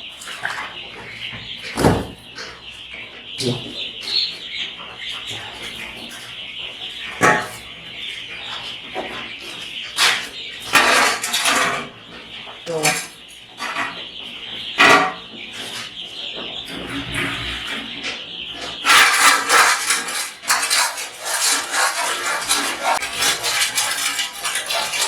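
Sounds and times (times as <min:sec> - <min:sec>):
chicks peeping: 0:00.0 - 0:25.0
clatters of things being handled: 0:08.6 - 0:14.0, 0:18.1 - 0:25.0.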